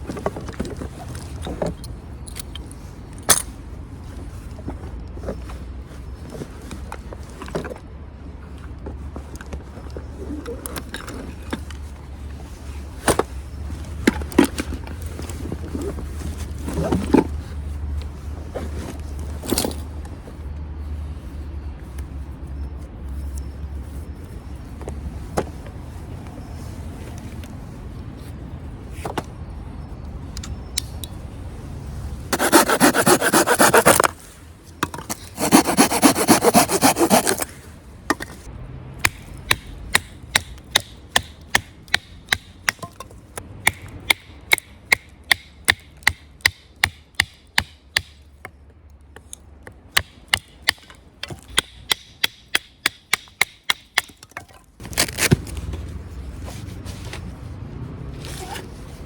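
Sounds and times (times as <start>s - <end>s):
sharp wooden clicks: 32.3s - 34.1s, 35.1s - 37.4s
sawing wood: 32.3s - 34.2s, 35.1s - 37.5s.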